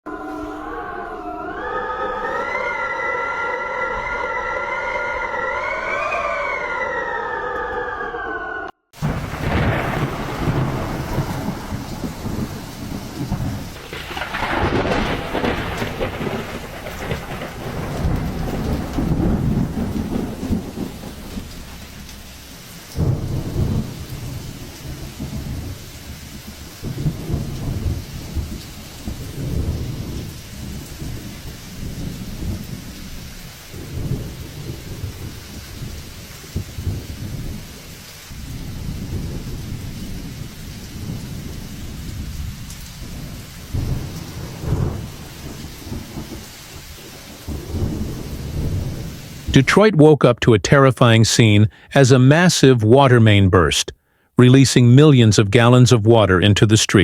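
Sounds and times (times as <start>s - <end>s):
siren wailing: 0.1s - 23.8s
rolling thunder rumbles: 9.0s - 49.6s
steady rain: 9.0s - 57.0s.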